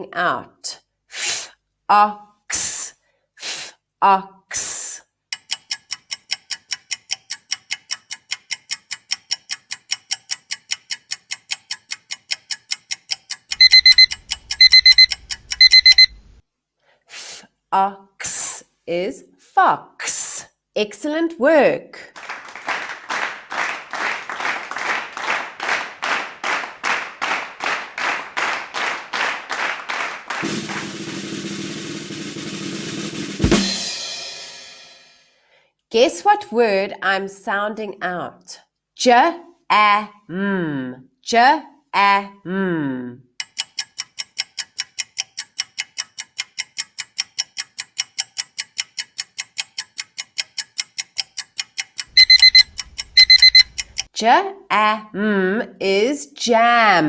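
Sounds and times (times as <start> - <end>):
clock ticking: 5.3 - 16.3, 43.4 - 54.1
drum beats: 13.6 - 16.1, 22.2 - 35.0, 52.1 - 54.0
alarm clock ringing: 13.6 - 16.2, 52.2 - 53.8
drum roll: 22.2 - 35.1
cymbal crash: 30.4 - 35.2.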